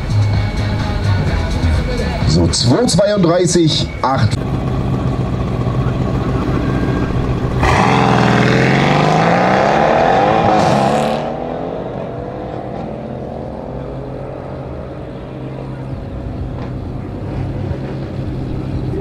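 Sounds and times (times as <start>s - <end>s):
car engine idling: 0.0s - 9.5s, 11.3s - 19.0s
car launching hard: 7.6s - 13.5s.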